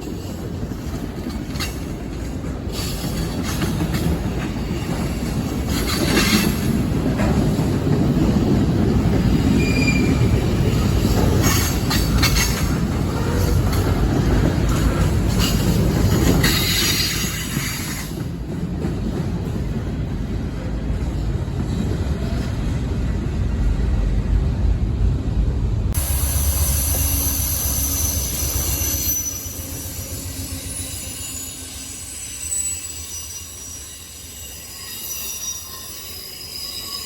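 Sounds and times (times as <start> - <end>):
train rumbling past: 0.0 - 37.0
high-pitched wheel squeals: 9.6 - 10.4, 26.0 - 37.0.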